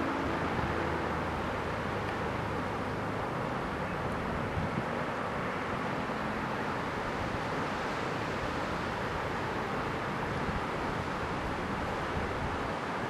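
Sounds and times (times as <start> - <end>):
heavy surf: 0.0 - 13.0
wind on microphone: 4.2 - 5.0.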